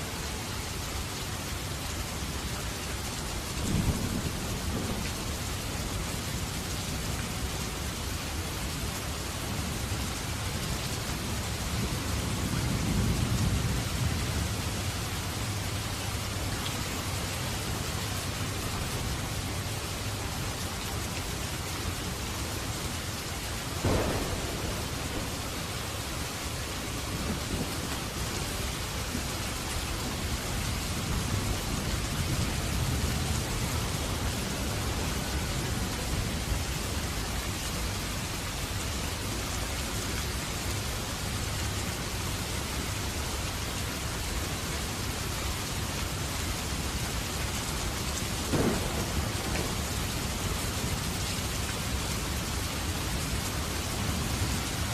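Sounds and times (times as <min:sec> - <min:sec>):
steady rain: 0:00.0 - 0:54.9
thunder rumble: 0:03.6 - 0:05.7, 0:23.8 - 0:37.2, 0:48.2 - 0:54.2
thunder crack: 0:23.8 - 0:28.0, 0:48.5 - 0:51.0.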